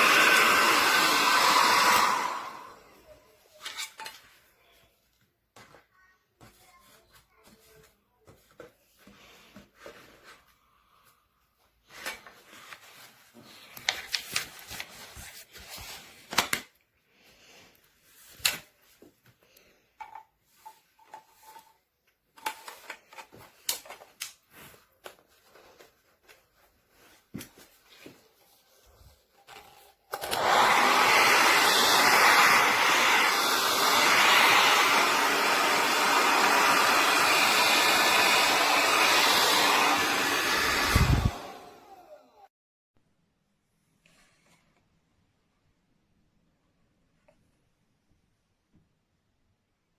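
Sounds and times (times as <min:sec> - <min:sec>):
hair dryer blowing: 0:00.0 - 0:03.0, 0:30.1 - 0:42.5.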